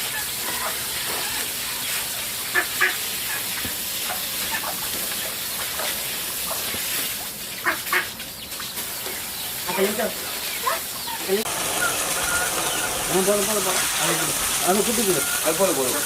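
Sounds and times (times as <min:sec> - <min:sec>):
poultry squawks: 0:00.0 - 0:03.7, 0:07.5 - 0:13.8, 0:14.9 - 0:16.0
steady hiss: 0:11.3 - 0:16.0.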